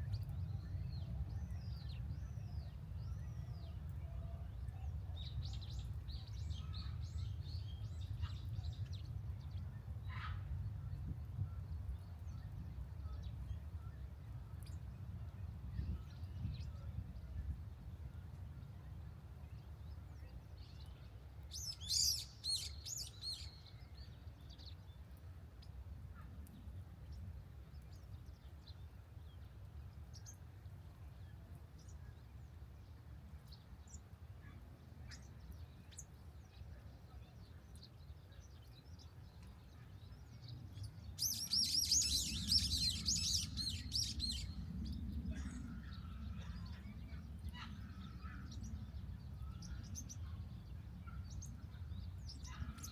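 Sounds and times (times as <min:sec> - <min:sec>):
birds chirping: 0:40.5 - 0:46.1.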